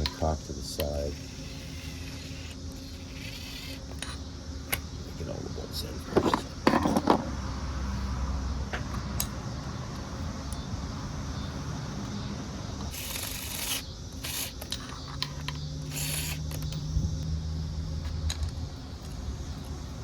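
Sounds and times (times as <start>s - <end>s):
steady low hum: 0.0s - 20.0s
metal clicks and rubbing: 12.8s - 16.9s.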